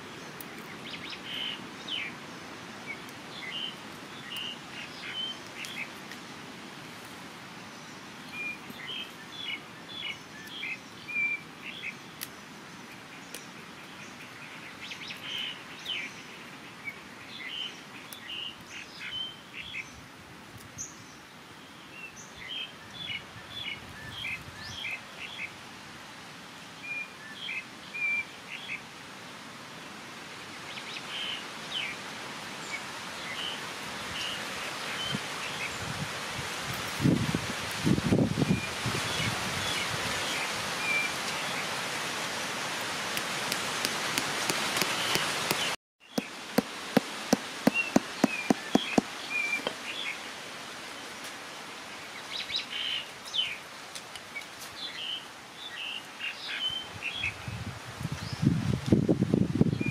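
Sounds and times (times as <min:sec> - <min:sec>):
steady background hiss: 0:00.0 - 0:58.4
birds chirping: 0:43.2 - 0:51.2.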